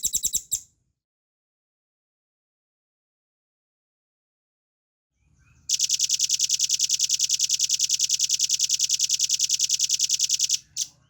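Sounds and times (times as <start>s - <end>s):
bird trilling: 0.0s - 0.6s.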